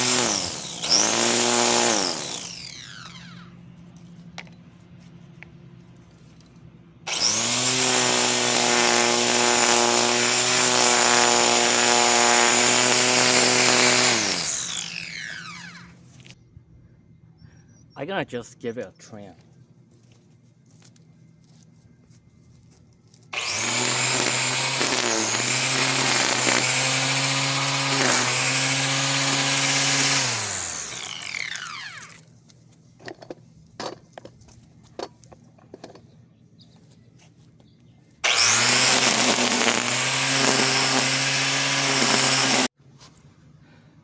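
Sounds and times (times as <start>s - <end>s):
string trimmer motor whining: 0.0s - 4.6s, 7.1s - 16.4s, 23.3s - 32.3s, 38.2s - 42.8s.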